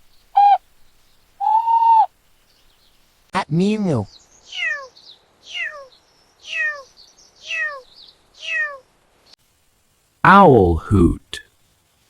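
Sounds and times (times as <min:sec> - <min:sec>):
cat meowing: 0:01.4 - 0:02.1, 0:04.5 - 0:04.9, 0:05.5 - 0:05.9, 0:06.5 - 0:07.8, 0:08.4 - 0:08.8.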